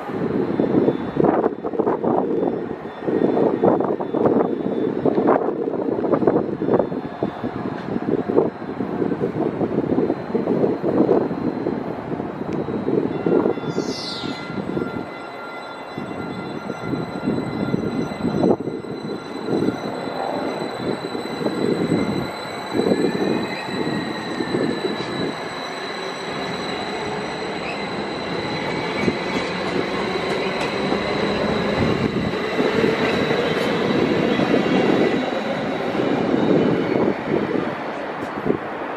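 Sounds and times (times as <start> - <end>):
train rail rumble: 0.0 - 38.9
thin high whine: 12.4 - 35.1.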